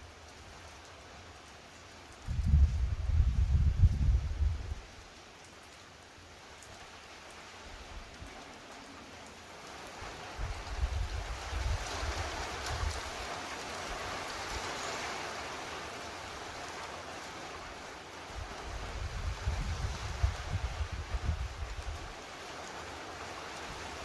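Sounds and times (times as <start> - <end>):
heavy rain pouring: 0.0 - 24.0
wind buffeting microphone: 2.2 - 4.9, 10.3 - 13.2, 18.4 - 22.2.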